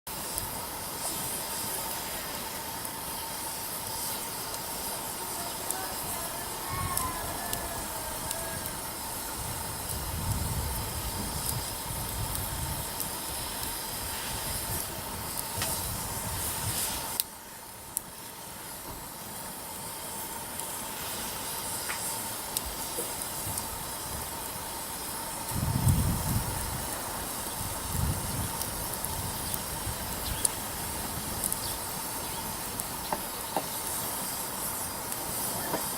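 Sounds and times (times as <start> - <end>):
firewood popping and crackling: 0.1 - 35.9
hiss of flames: 0.1 - 35.9.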